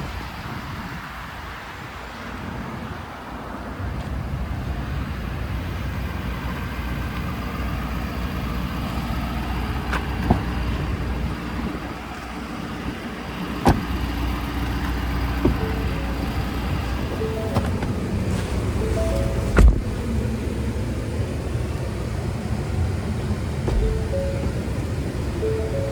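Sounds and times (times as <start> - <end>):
truck engine humming: 3.4 - 25.9
short knocks: 23.6 - 24.7.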